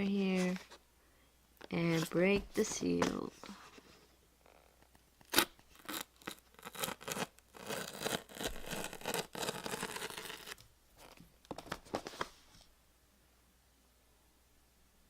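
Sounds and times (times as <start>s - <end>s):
cardboard seal snapping: 5.2s - 10.6s.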